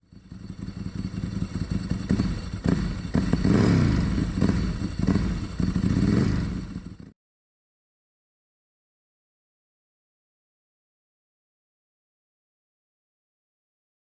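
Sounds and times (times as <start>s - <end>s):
car engine revving: 1.1s - 7.1s.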